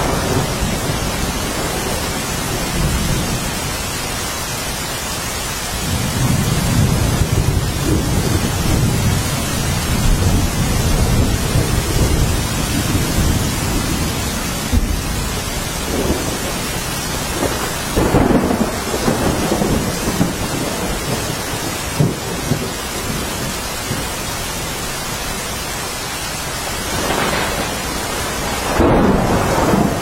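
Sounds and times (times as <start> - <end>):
thunder rumbling: 0.0 - 4.0, 5.7 - 24.7, 26.6 - 30.0
heavy rain: 0.0 - 30.0
thunder crack: 15.8 - 23.3, 26.8 - 30.0.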